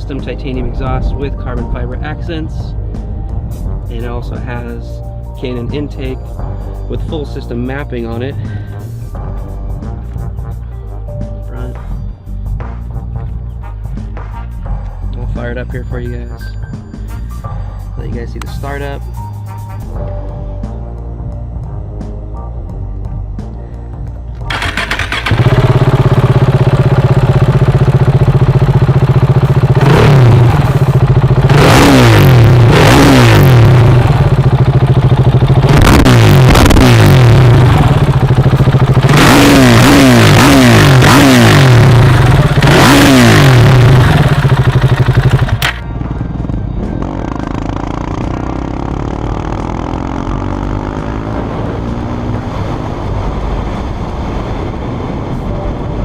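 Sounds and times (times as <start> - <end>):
motorcycle engine revving: 24.4 - 55.4.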